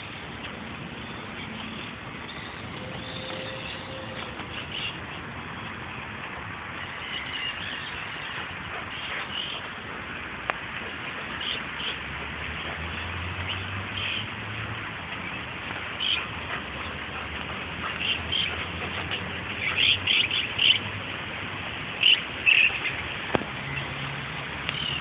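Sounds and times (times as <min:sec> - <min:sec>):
birds chirping: 0:00.9 - 0:10.2, 0:10.8 - 0:14.4, 0:15.1 - 0:20.9, 0:21.9 - 0:24.0, 0:24.7 - 0:25.0.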